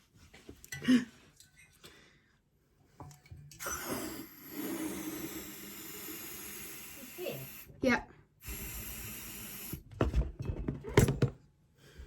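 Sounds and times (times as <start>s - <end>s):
helium tank valve hissing: 3.6s - 7.7s, 8.4s - 9.9s.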